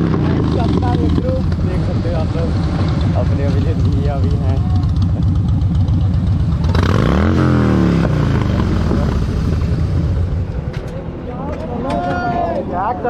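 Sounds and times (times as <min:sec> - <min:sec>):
motorcycle engine revving: 0:00.0 - 0:11.0
motorcycle engines running: 0:00.0 - 0:12.0.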